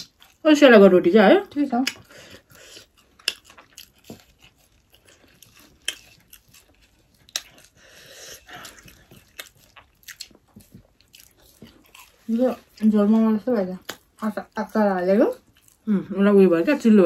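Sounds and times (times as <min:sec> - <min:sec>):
people chewing bread: 0:00.0 - 0:17.0.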